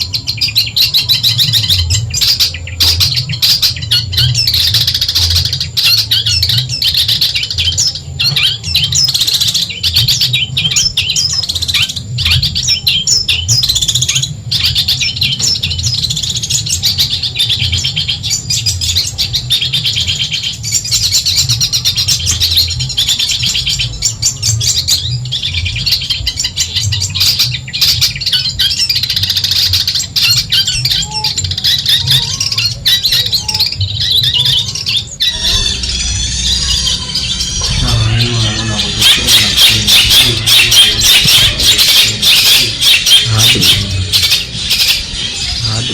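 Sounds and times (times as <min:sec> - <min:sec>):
bird singing rapid chirps and trills: 0:00.0 - 0:45.9
steady low hum: 0:33.7 - 0:45.9.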